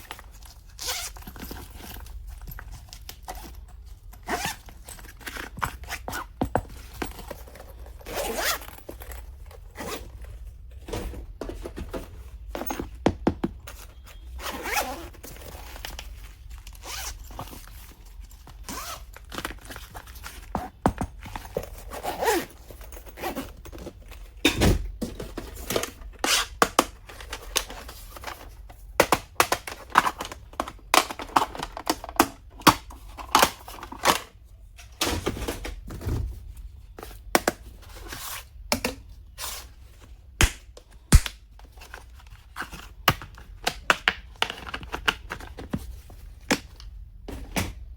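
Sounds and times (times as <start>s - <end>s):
packaging clicks and taps: 40.5s - 46.9s.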